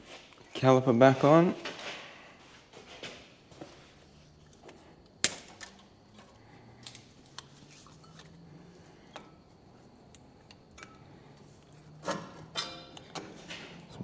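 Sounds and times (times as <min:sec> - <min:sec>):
metal clunk: 0:12.0 - 0:14.0.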